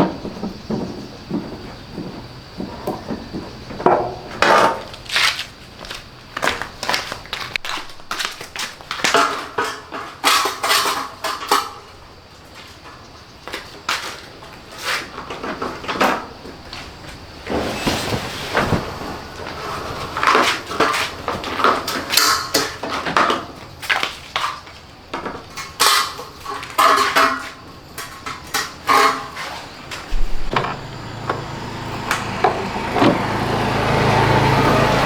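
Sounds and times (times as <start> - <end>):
knocks and clanks of tools: 0.0 - 5.5, 6.4 - 12.0, 19.5 - 33.2
washing machine motor hum: 27.8 - 35.0.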